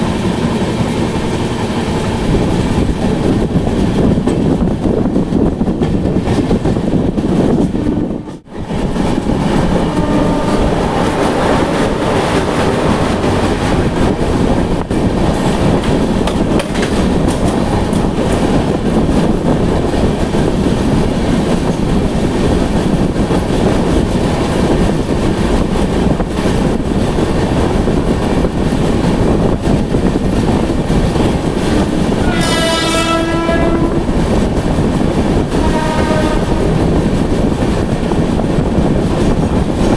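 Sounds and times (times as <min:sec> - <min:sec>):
train rumbling on track: 0:00.0 - 0:39.9
train horn: 0:09.4 - 0:12.2, 0:32.1 - 0:34.4, 0:35.5 - 0:36.8.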